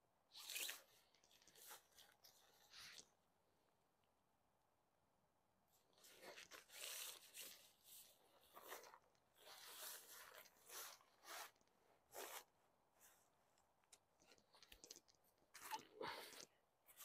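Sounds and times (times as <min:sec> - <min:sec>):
tent fabric rustling: 0:06.0 - 0:13.3.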